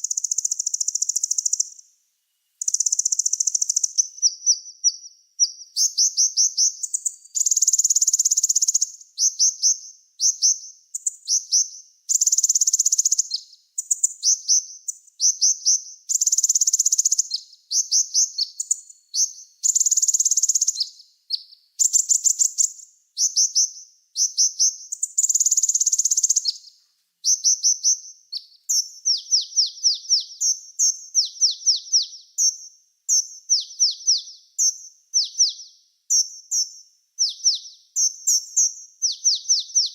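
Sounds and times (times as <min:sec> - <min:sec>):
songbird chirping: 0:00.0 - 0:39.9
loud buzzing bird trill: 0:27.3 - 0:39.9.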